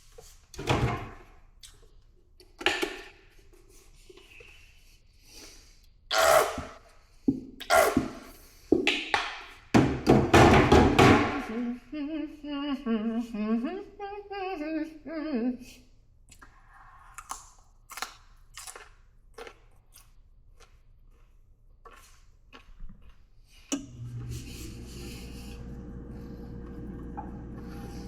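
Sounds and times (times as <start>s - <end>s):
woman humming: 11.4s - 15.8s
chewing crunchy raw vegetables: 16.3s - 23.7s
steady low hum: 23.9s - 28.0s.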